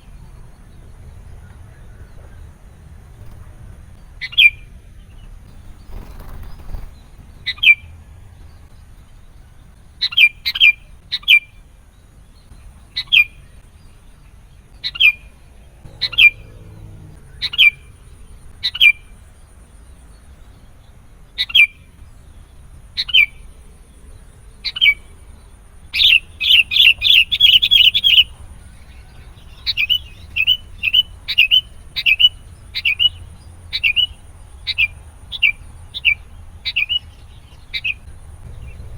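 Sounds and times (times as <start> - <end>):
bird chirping sharply: 12.4 - 20.4, 25.9 - 38.9.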